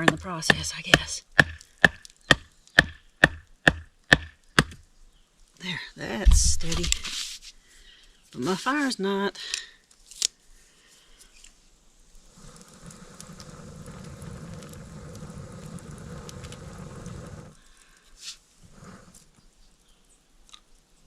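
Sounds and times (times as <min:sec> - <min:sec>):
person blowing on campfire: 0:12.2 - 0:19.4.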